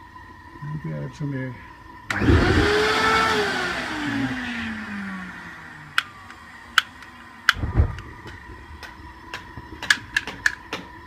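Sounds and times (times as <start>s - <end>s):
vacuum cleaner blowing air: 2.1s - 6.7s.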